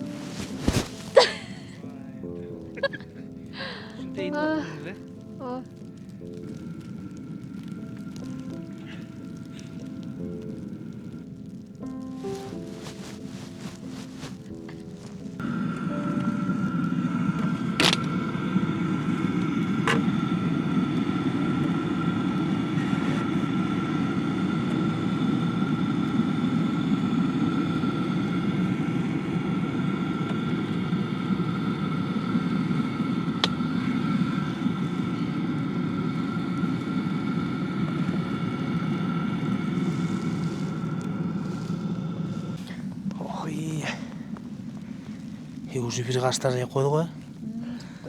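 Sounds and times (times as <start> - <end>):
high whine: 0.0 - 1.9, 11.9 - 47.5
vehicle engine drone: 12.2 - 47.7.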